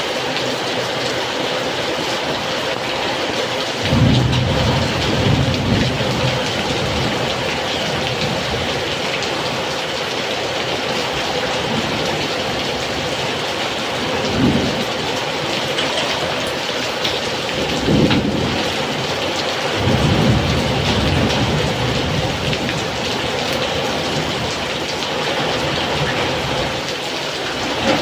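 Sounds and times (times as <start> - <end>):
heavy rain pouring: 0.0 - 28.0
strong wind: 11.1 - 28.0.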